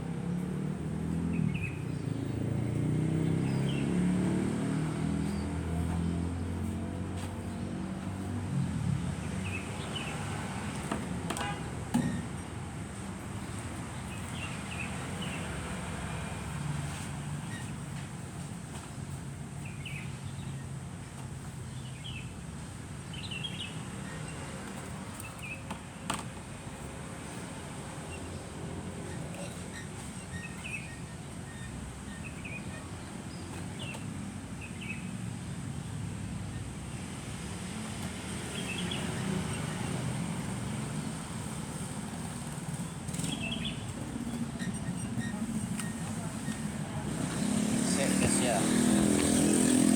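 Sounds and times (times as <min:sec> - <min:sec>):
birds chirping: 0:00.1 - 0:10.8, 0:13.3 - 0:16.4, 0:19.6 - 0:22.4, 0:23.1 - 0:25.7, 0:27.9 - 0:35.2, 0:38.3 - 0:49.9
truck engine droning: 0:38.9 - 0:49.9.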